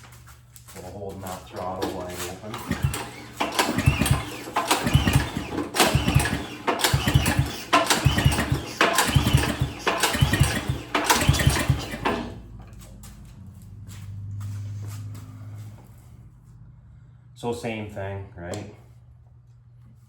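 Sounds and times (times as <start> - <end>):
pull-starter rope whir: 0.7 - 13.7.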